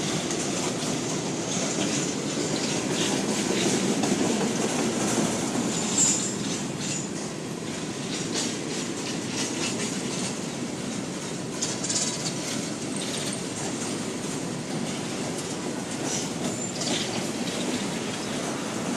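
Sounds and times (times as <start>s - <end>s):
train wheels rumbling on rails: 0.0s - 18.9s
high wheel squeals: 5.7s - 7.1s.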